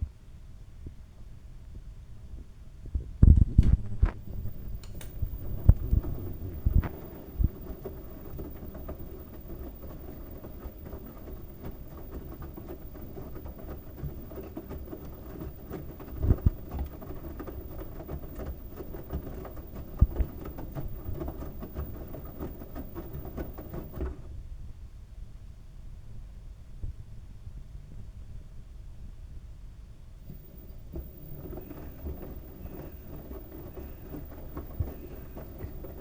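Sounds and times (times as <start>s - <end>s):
washing machine drum rumbling: 3.2s - 24.3s, 30.2s - 36.0s
water patter: 3.6s - 24.1s, 30.2s - 36.0s.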